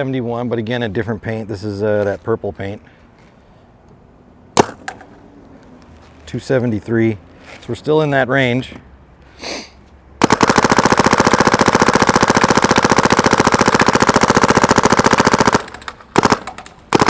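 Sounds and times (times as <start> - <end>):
paintball gun firing rapidly: 4.6 - 5.0, 10.2 - 17.0.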